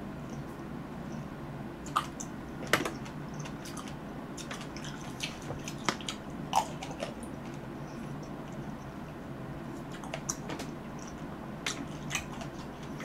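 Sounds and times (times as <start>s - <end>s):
mouth clicks and smacks: 1.8s - 8.8s
wet biting and chewing: 1.8s - 8.9s, 9.8s - 13.0s.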